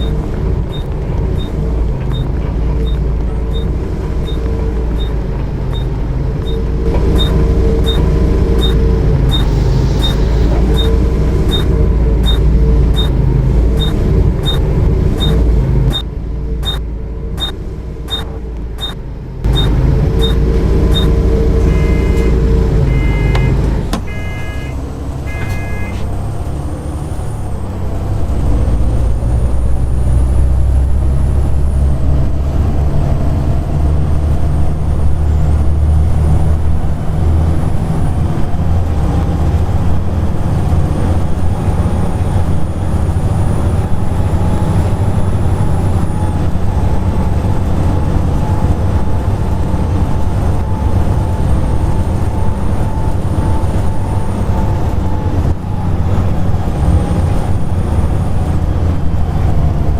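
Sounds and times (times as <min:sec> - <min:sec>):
short beeps: 0:00.0 - 0:14.6, 0:15.2 - 0:16.8, 0:17.4 - 0:26.1
regular ticks: 0:00.0 - 0:16.8, 0:17.4 - 0:21.2
vacuum-like engine whine: 0:00.0 - 0:25.8
bus diesel engine running: 0:00.0 - 0:59.9.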